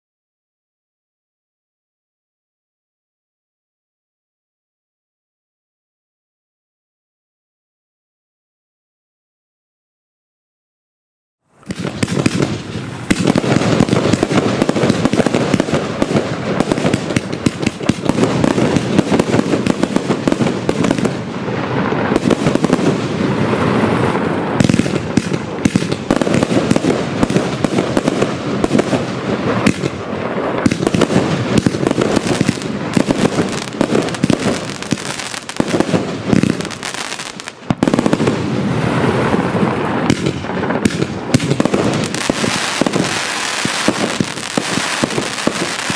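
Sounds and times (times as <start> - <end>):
fireworks launching and bursting: 11.5 - 45.9.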